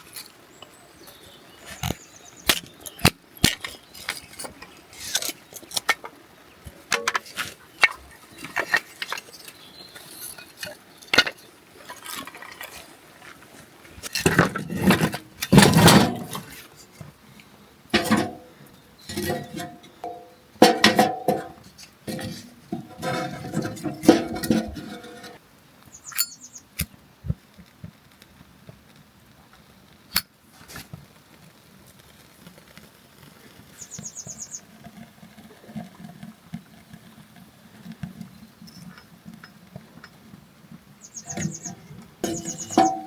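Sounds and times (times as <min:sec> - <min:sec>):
camp cookware clattering: 0:00.0 - 0:17.0, 0:17.9 - 0:25.4, 0:26.0 - 0:26.5, 0:41.2 - 0:43.0
light pattering: 0:00.0 - 0:43.0.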